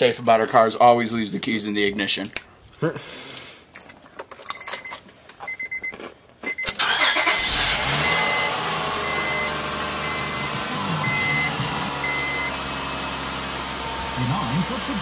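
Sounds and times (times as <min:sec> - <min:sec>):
car warning chime beeping: 0:04.6 - 0:13.2
car engine starting and running: 0:06.5 - 0:15.0.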